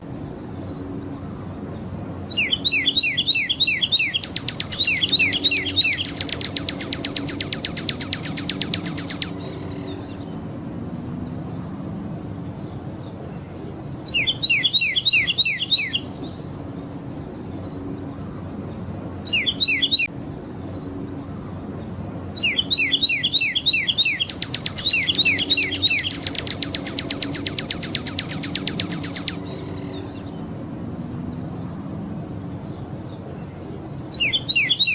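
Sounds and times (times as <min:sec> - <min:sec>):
bird whistled song with trills: 0:02.3 - 0:10.4, 0:14.1 - 0:16.4, 0:19.3 - 0:20.1, 0:22.4 - 0:30.4, 0:34.1 - 0:34.9.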